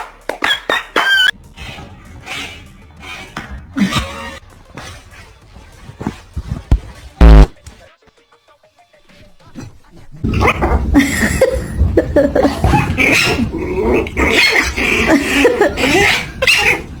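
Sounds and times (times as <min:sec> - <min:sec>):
loud noisy background: 0:07.2 - 0:07.6.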